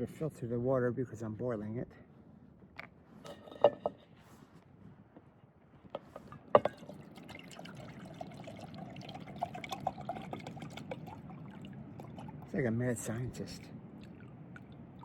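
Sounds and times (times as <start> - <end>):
water pouring into container: 6.7 - 12.6.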